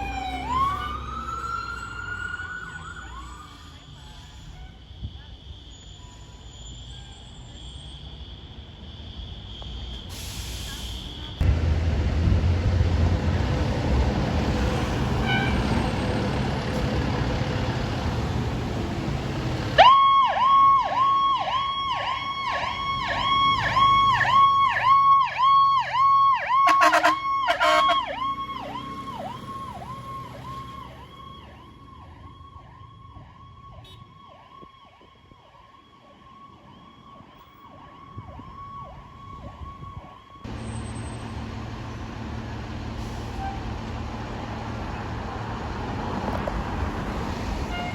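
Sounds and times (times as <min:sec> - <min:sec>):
siren yelping: 0:00.0 - 0:03.9, 0:19.8 - 0:40.5
heavy vehicle rumble: 0:00.0 - 0:08.6, 0:09.8 - 0:19.9, 0:38.1 - 0:47.9.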